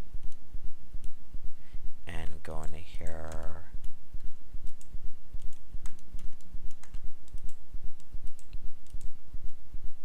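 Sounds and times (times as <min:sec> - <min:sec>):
keyboard and mouse clicks: 0:03.0 - 0:09.6.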